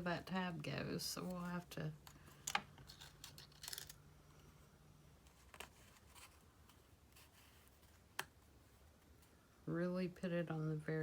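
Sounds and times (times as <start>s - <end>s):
paper card rustling: 2.3s - 4.0s.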